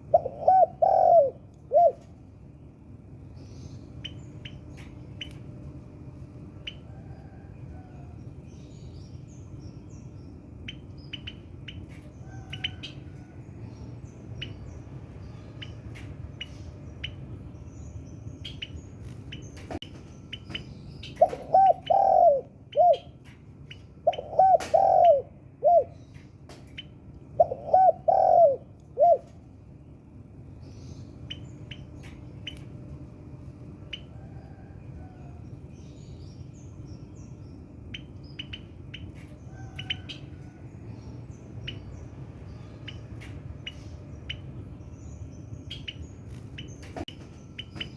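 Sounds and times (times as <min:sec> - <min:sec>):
dove cooing: 0:00.0 - 0:02.1, 0:21.2 - 0:23.1, 0:24.0 - 0:26.0, 0:27.4 - 0:29.4
low steady hum: 0:00.0 - 0:47.9.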